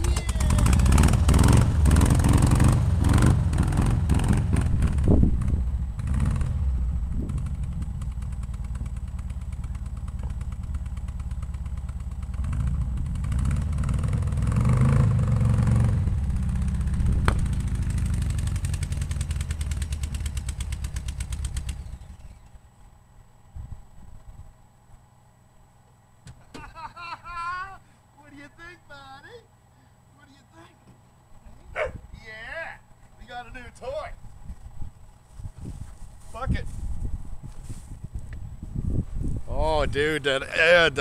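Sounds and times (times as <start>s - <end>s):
car engine running and revving: 0.0s - 22.4s.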